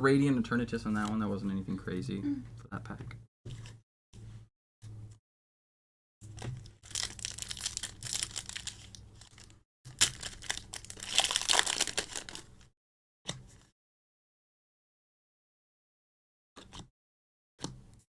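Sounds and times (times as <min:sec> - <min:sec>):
foil wrapper tearing and crinkling: 0:06.8 - 0:12.6.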